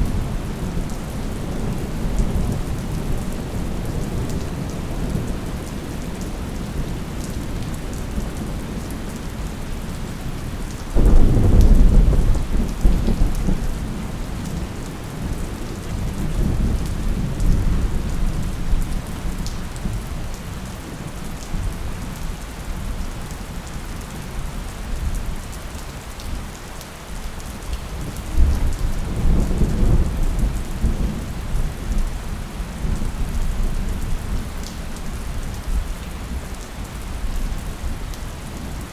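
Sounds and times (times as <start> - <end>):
steady rain: 0.0 - 38.9
thunder clap rumbling: 11.0 - 13.9.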